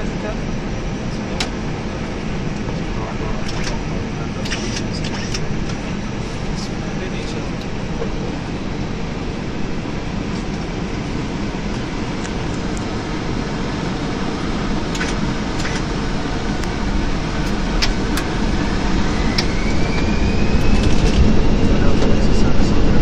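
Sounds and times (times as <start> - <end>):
cockpit rumble: 0.0 - 23.0
jet engine whine rising: 0.0 - 23.0
sharp clicks: 4.4 - 5.5, 14.9 - 15.9.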